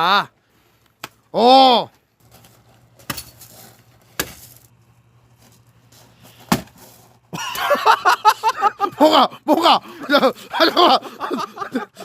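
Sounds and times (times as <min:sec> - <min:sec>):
axe striking firewood: 0:03.0 - 0:03.4, 0:04.1 - 0:04.6, 0:06.4 - 0:06.8.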